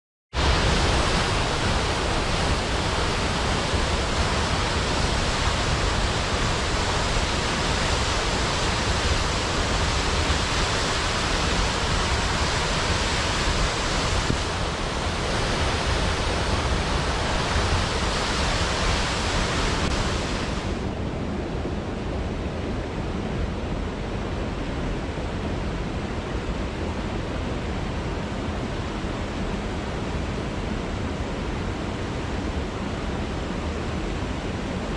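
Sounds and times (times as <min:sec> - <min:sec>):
waterfall rushing: 0:00.4 - 0:21.0.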